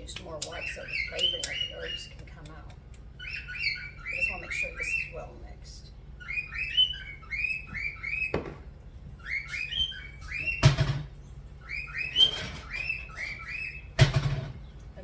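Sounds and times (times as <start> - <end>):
spoon stirring dry mix squeaking: 0.1 - 5.3.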